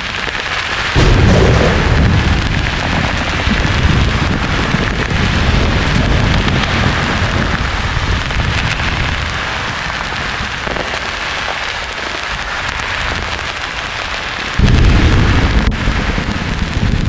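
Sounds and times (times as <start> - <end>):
low thunder rumble: 1.0 - 9.6, 14.6 - 17.0.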